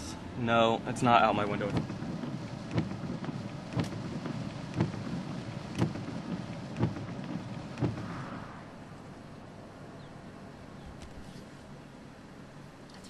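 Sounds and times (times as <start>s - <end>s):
rain on car windshield: 0.8s - 8.3s
windshield wipers thumping: 0.8s - 8.3s.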